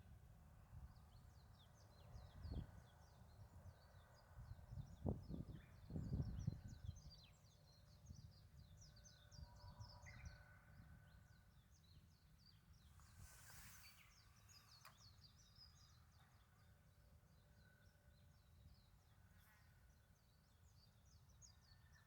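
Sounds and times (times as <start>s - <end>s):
small birds chirping: 11.7s - 22.0s
brief hiss: 13.0s - 15.1s
click: 14.7s - 15.1s.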